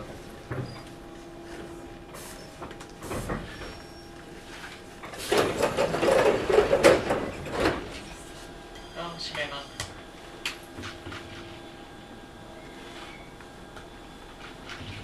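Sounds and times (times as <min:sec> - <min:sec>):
train car background rumble: 0:00.0 - 0:15.0
loud rattling clatter: 0:05.2 - 0:07.9.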